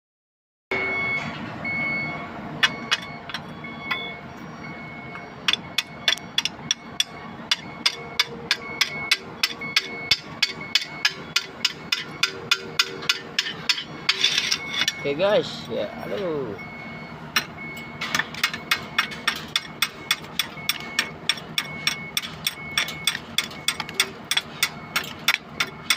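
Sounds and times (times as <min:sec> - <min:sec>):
workshop noise: 0:00.7 - 0:25.9
hammer striking metal: 0:05.5 - 0:15.0, 0:17.3 - 0:25.9.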